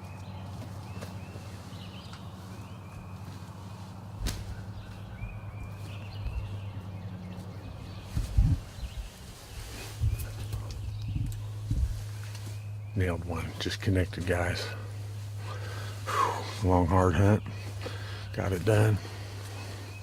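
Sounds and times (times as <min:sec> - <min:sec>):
low rumbling: 0:01.2 - 0:20.0
bow shot snap: 0:04.2 - 0:04.6
heavy thumps: 0:04.2 - 0:05.0.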